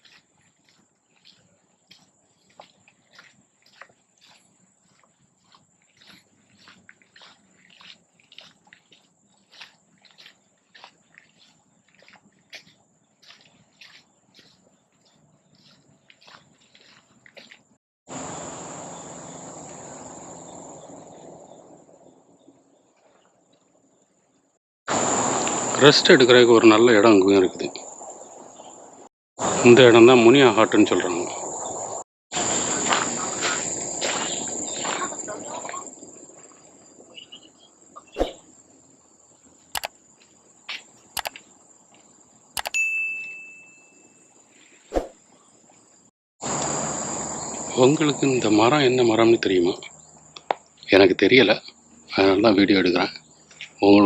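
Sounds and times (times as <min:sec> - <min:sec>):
insects buzzing: 0:01.1 - 0:22.2, 0:24.9 - 0:42.7, 0:43.8 - 0:54.0
clear ringing tone: 0:42.6 - 0:44.4.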